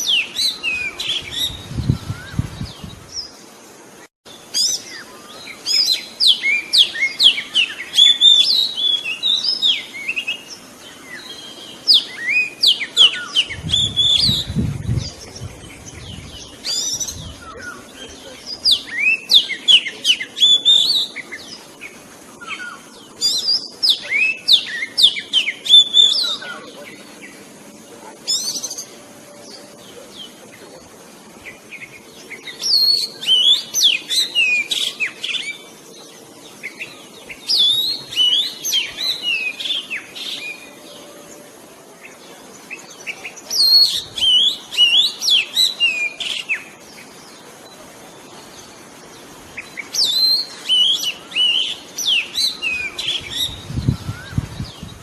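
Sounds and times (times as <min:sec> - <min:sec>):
bird singing whistled phrases: 0:00.0 - 0:02.5, 0:11.1 - 0:14.6, 0:18.7 - 0:21.2, 0:36.8 - 0:40.7, 0:49.6 - 0:54.7.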